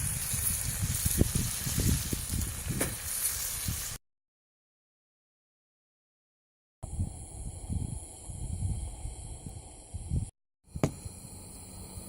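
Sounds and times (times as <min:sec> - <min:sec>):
campfire crackling and hissing: 0:00.0 - 0:04.0, 0:06.9 - 0:12.0
sharp fire pops: 0:00.0 - 0:04.0
wind on microphone: 0:00.0 - 0:04.0, 0:06.8 - 0:11.2.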